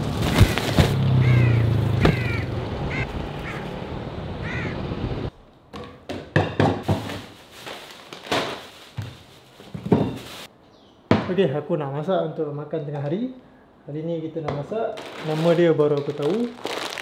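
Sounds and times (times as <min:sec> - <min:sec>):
street noise: 0:00.0 - 0:06.2
bird calling harshly: 0:00.3 - 0:03.7, 0:04.4 - 0:04.8
groceries unpacked from plastic bag: 0:07.0 - 0:10.5, 0:15.0 - 0:17.0.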